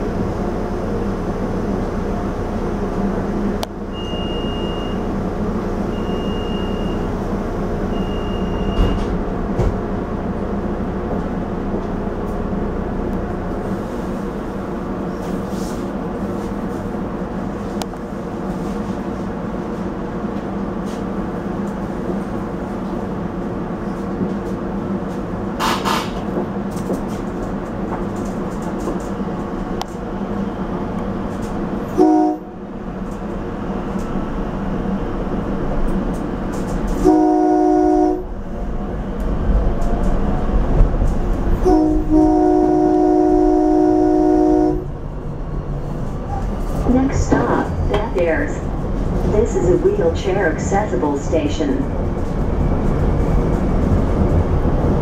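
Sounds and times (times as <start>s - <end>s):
railcar interior hum: 0.0s - 55.0s
short high beeps: 3.9s - 5.0s.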